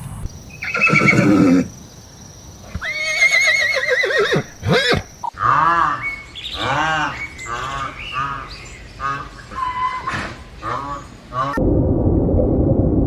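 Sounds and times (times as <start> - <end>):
horse whinnying: 0.6 - 1.7, 2.7 - 5.1.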